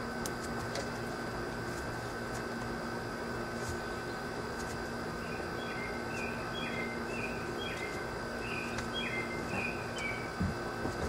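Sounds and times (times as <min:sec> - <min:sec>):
small bird chirping: 0:05.2 - 0:10.3.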